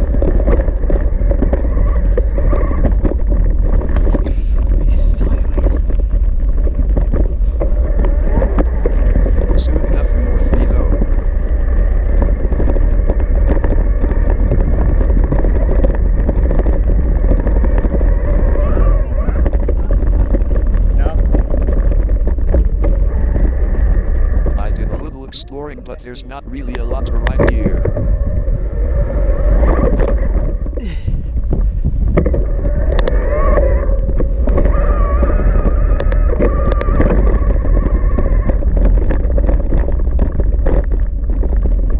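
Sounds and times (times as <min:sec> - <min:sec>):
bike rattling and knocking: 0:00.0 - 0:41.9
wind rumbling on microphone: 0:00.0 - 0:41.9
clicks and rattles: 0:29.6 - 0:41.9.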